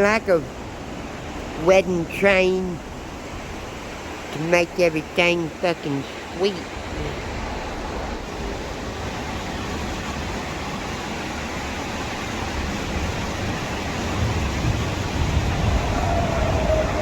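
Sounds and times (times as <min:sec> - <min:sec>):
train wheels rumbling on rail: 0:06.8 - 0:17.0
faint drawn-out squeal: 0:15.7 - 0:17.0.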